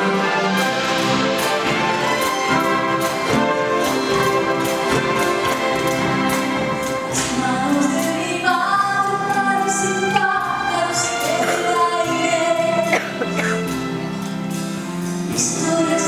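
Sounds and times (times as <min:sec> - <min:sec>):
orchestra playing: 0:00.0 - 0:16.0
person singing: 0:07.2 - 0:13.6.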